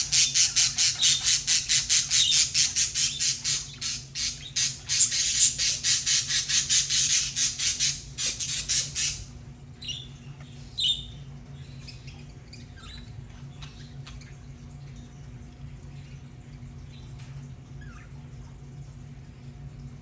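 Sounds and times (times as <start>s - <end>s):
budgerigars chattering: 0.0s - 9.2s
low steady hum: 0.0s - 20.0s.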